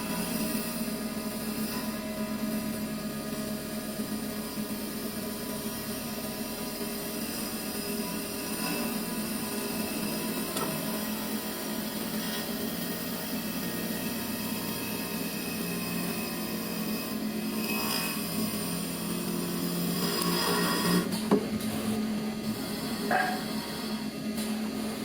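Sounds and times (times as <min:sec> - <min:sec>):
wood lathe machine hum: 0:00.0 - 0:25.0
tools hissing cutting wood: 0:07.1 - 0:12.9, 0:16.7 - 0:24.8.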